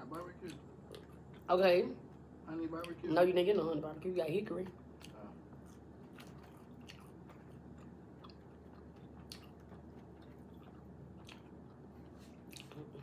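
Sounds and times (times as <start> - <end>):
person chewing food: 0.2 - 1.5, 4.8 - 13.0.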